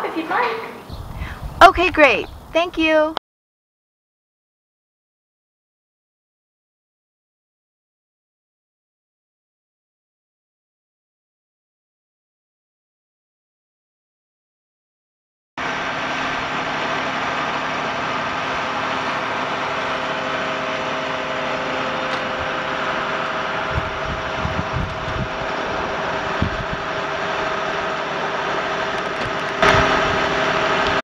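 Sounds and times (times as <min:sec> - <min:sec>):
truck engine running: 0:15.6 - 0:31.0.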